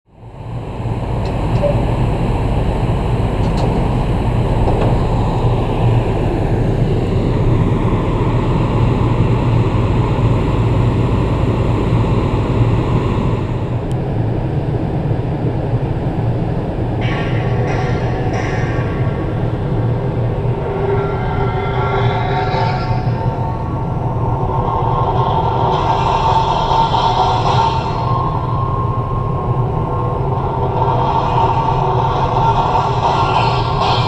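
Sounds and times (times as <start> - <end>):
gong rolling: 16.6 - 34.0.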